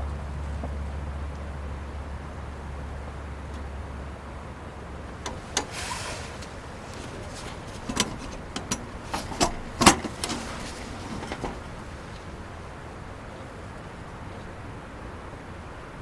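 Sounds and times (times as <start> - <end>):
light clicks and knocks: 5.2 - 12.5
brief rustle: 5.2 - 12.6.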